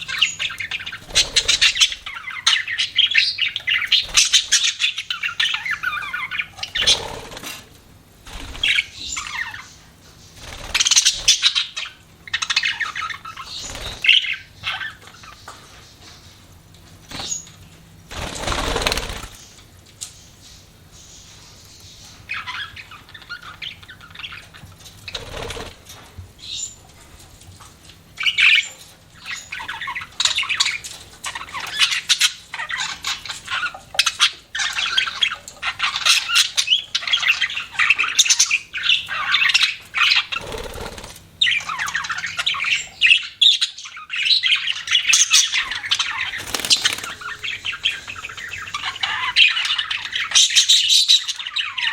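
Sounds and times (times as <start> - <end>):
budgerigars chirping and squawking: 0.0 - 7.7, 8.3 - 16.4, 17.1 - 19.6, 20.2 - 25.7, 28.2 - 51.9
rustling bursts: 46.3 - 47.4.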